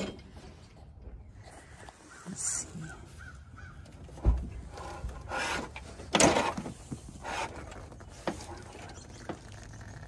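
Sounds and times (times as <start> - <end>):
panels scraping: 4.2 - 9.5.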